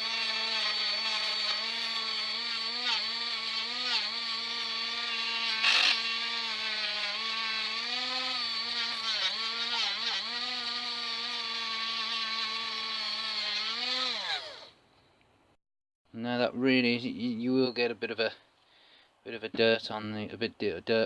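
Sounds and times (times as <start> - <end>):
rotary tool motor whine: 0.0 - 14.8.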